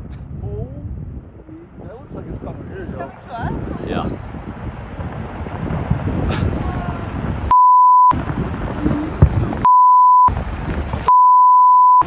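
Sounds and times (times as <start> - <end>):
censor bleeps: 7.5 - 8.2, 9.6 - 10.3, 11.1 - 12.0.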